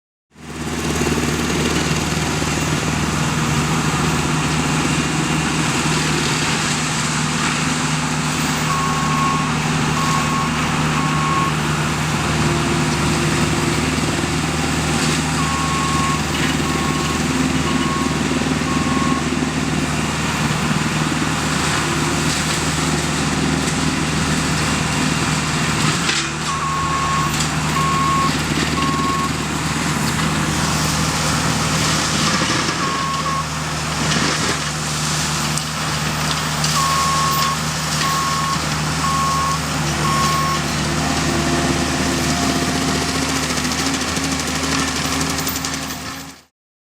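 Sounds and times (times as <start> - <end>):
loader engine running under load: 0.3 - 46.5
reversing alarm beeps: 8.7 - 11.6, 15.3 - 19.3, 26.5 - 29.4, 32.7 - 33.5, 36.7 - 40.8.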